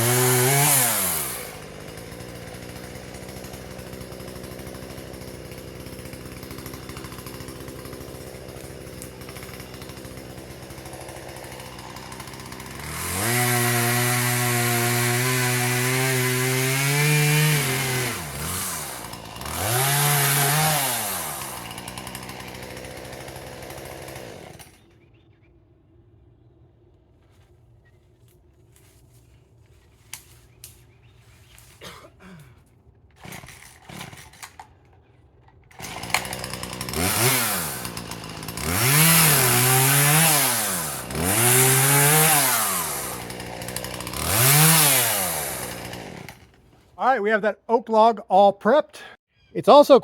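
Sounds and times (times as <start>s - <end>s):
chainsaw idling and revving: 0.0s - 24.9s, 33.2s - 34.8s, 35.6s - 47.3s.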